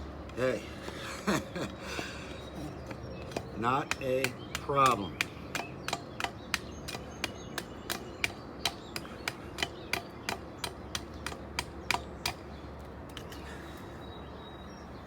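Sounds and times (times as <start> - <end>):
knife chopping wood: 2.8 - 12.4.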